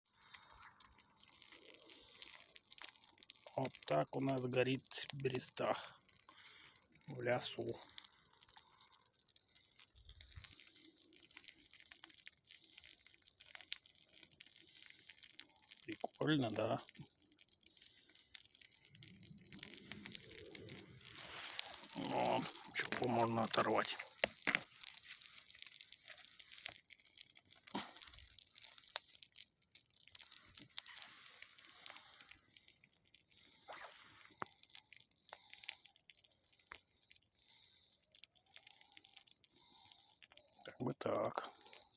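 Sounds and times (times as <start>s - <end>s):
crackling of burning bark: 0.0s - 41.9s
small snaps: 0.1s - 41.9s.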